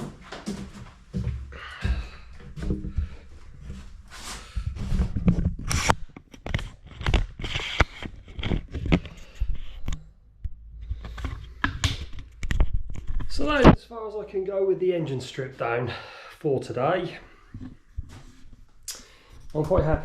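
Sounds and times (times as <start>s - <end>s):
clunks of tools and parts: 4.7s - 13.8s.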